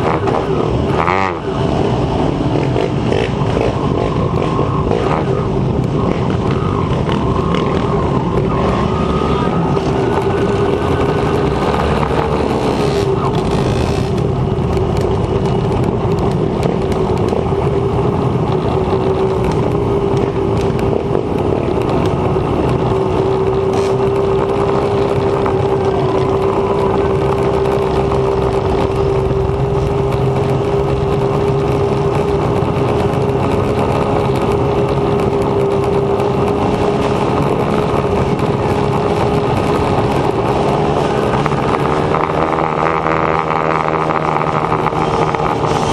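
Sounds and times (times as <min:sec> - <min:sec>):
wind rushing over microphone: 0:00.0 - 0:45.9.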